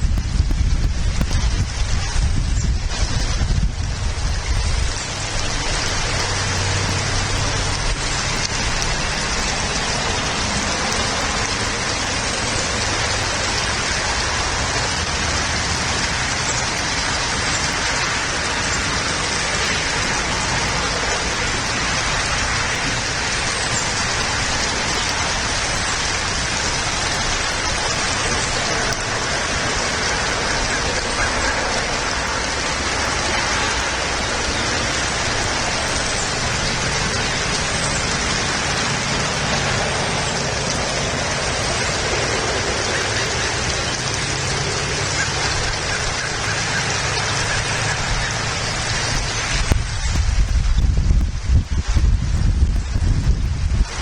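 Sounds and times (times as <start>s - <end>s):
low rumble: 0.0s - 17.4s, 47.5s - 54.0s
steady rain falling: 0.0s - 54.0s.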